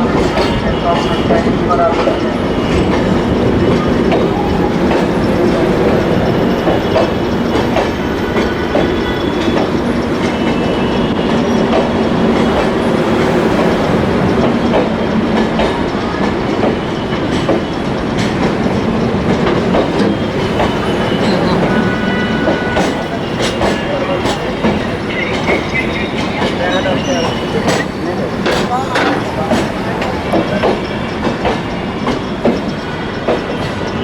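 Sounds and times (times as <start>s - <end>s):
train wheels clicking over rail joints: 0.0s - 34.0s
high wheel squeals: 15.7s - 34.0s.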